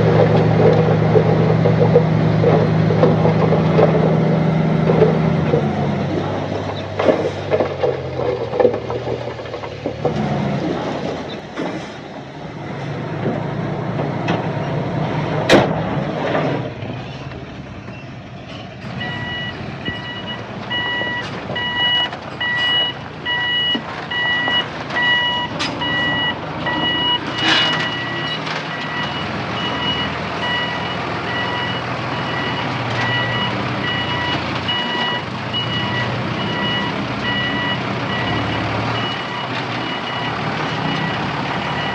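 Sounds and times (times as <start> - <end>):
heavy machinery engine running: 0.0 - 41.9
reversing alarm beeping: 19.0 - 41.9.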